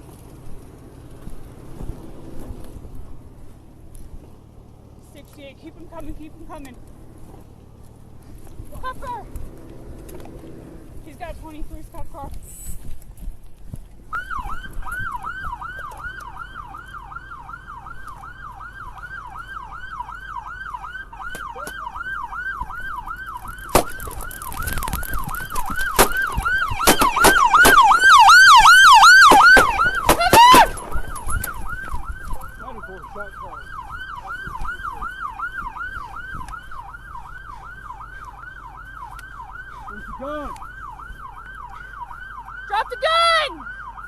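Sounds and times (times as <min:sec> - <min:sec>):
higher warbling siren: 0:14.1 - 0:44.0
police siren yelping: 0:14.1 - 0:44.0
gunshots: 0:26.0 - 0:28.1.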